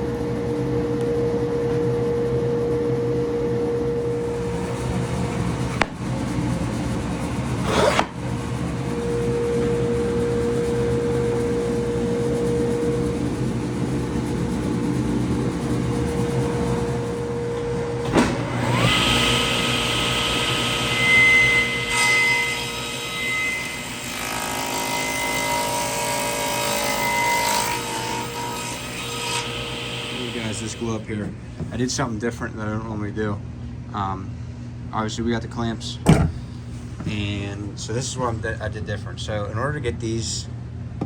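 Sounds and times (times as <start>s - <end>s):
motor spinning up with whine: 0.0s - 21.8s
machine motor humming: 0.0s - 26.8s.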